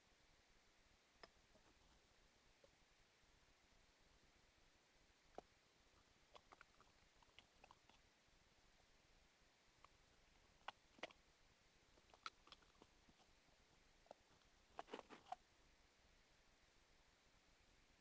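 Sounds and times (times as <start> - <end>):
slime squelching: 6.3 - 8.0, 9.8 - 11.2, 12.0 - 15.4.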